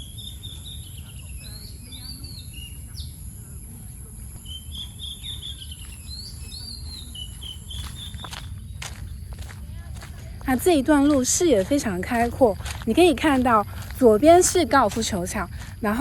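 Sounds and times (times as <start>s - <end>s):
songbird whistling: 0.0s - 3.4s, 4.0s - 10.1s.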